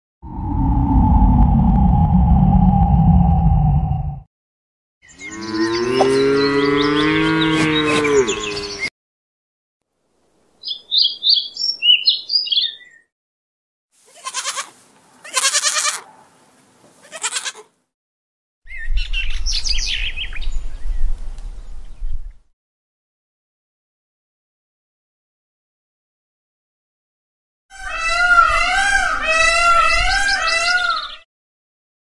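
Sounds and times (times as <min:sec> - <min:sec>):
low rumble: 0:00.2 - 0:04.3
bird chirps: 0:05.0 - 0:08.9, 0:10.6 - 0:13.1, 0:18.7 - 0:22.4
cow mooing: 0:05.3 - 0:08.9.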